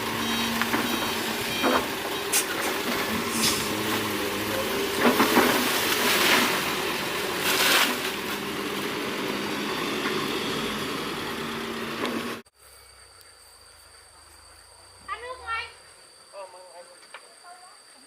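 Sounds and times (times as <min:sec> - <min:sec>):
excavator diesel engine running: 0:00.0 - 0:12.5
rushes of hiss: 0:02.3 - 0:08.3.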